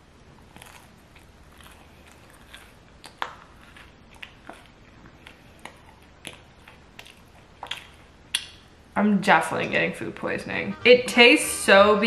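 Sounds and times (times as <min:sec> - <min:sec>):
chewing crusty pizza crunches: 0:00.4 - 0:08.2.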